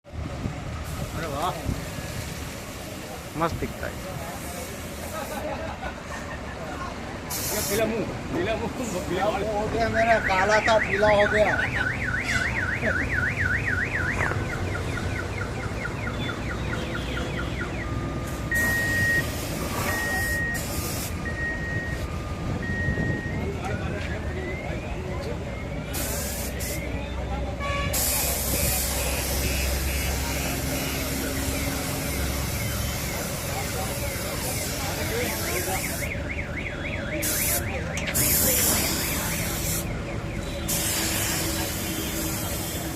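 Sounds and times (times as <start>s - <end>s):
loud hiss: 0.9s - 5.6s, 7.3s - 8.1s, 25.9s - 26.9s, 27.9s - 36.1s, 40.7s - 42.9s
spray gun hissing: 7.3s - 7.9s, 26.0s - 26.8s, 40.7s - 42.9s
vehicle alarm cycling tones: 9.2s - 27.3s, 28.4s - 42.9s.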